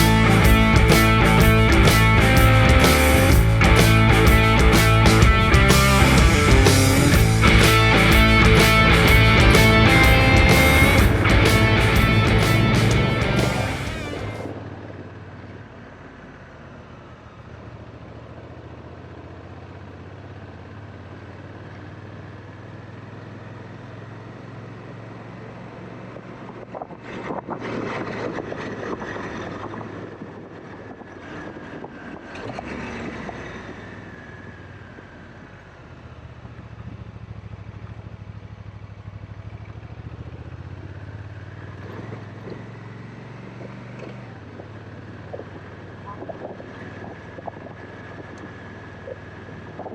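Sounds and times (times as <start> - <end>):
rough rush of noise: 0.0 - 14.8
motorcycle engine running: 0.0 - 32.2, 33.9 - 49.9.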